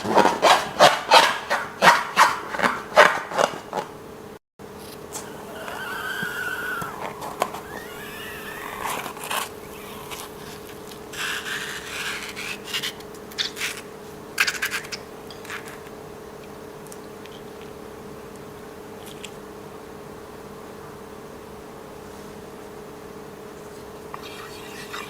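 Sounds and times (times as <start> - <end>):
crackly scraping handling: 0.0 - 4.0, 6.8 - 16.0
steady low hum: 0.0 - 25.0
rubber balloons squeaking: 5.2 - 10.3, 24.1 - 25.0.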